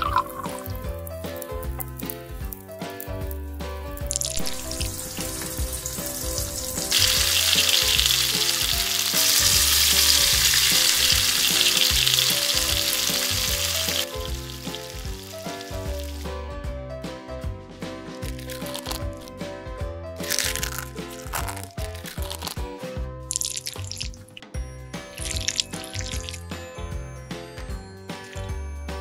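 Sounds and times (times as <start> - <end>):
background music: 0.0 - 29.0
food sizzling in frying pan: 4.0 - 16.3, 25.1 - 26.4.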